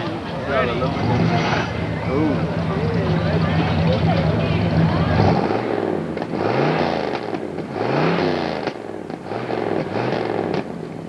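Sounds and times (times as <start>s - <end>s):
car engine revving: 0.5s - 10.7s.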